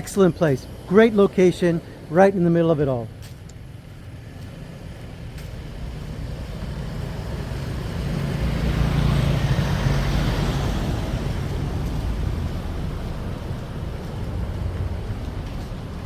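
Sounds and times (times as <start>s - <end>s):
vehicle passing by: 3.7s - 16.0s.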